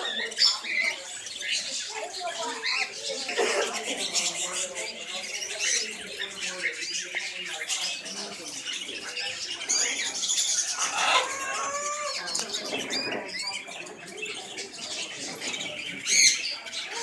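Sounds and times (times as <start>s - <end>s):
canaries chirping: 0.0s - 17.0s
loud bird call: 10.6s - 13.1s.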